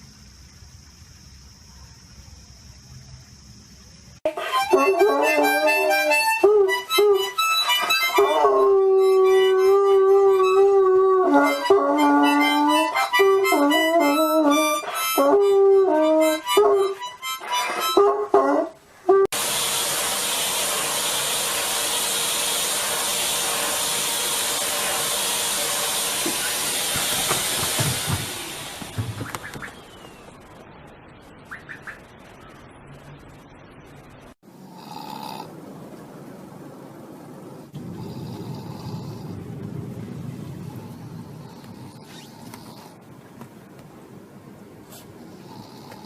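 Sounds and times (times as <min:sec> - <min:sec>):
harmonica-like tones: 0:04.3 - 0:18.1
dog howling: 0:08.1 - 0:12.9, 0:17.9 - 0:19.3
steady rushing hiss: 0:18.8 - 0:46.0.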